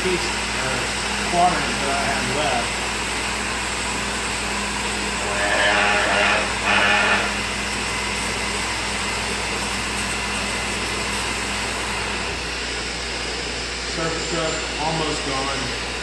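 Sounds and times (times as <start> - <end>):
orbital sander running: 0.0 - 16.0
vacuum dust extraction: 0.0 - 16.0
high-pitched squeals: 5.2 - 7.4.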